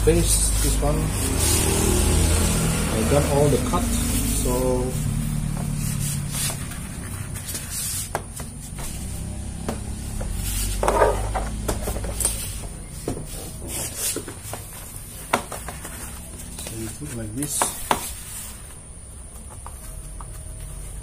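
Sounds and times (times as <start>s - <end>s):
steady low hum: 0.0s - 21.0s
foam liner rubbing against car door: 0.3s - 11.3s, 12.4s - 16.4s.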